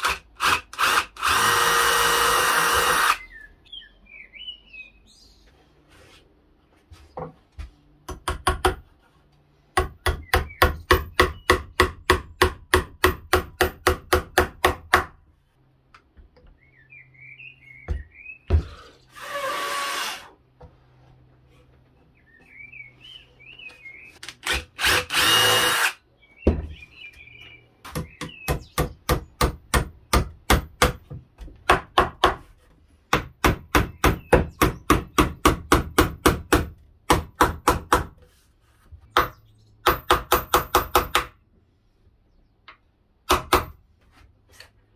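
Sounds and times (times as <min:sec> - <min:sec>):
birds chirping: 0:02.2 - 0:05.9, 0:16.2 - 0:19.2, 0:21.4 - 0:24.3, 0:25.3 - 0:29.5.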